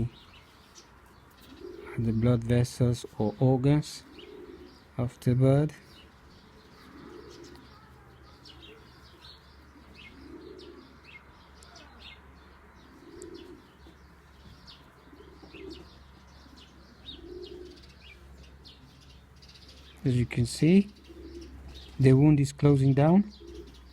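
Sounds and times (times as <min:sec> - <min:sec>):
pigeons cooing: 0:00.0 - 0:23.9.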